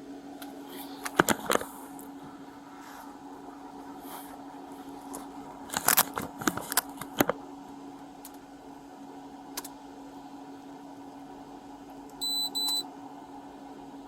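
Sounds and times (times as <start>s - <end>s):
low electrical hum: 0.0s - 14.0s
sharp clicks and rustles: 0.4s - 2.1s, 5.0s - 7.4s.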